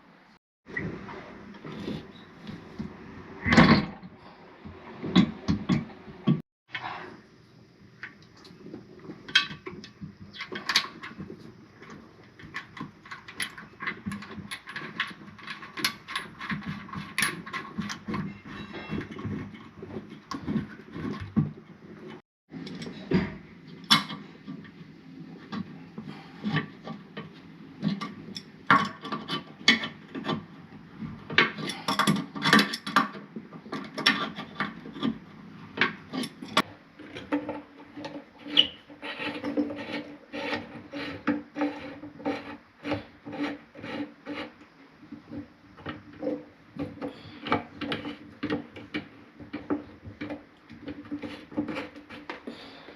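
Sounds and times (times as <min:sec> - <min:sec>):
scraping and rubbing strokes: 0:37.9 - 0:44.6.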